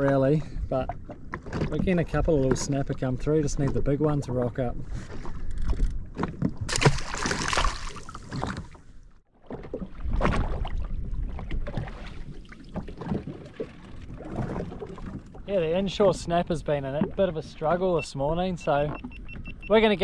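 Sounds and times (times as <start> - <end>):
water lapping against hull: 0.0 - 20.0.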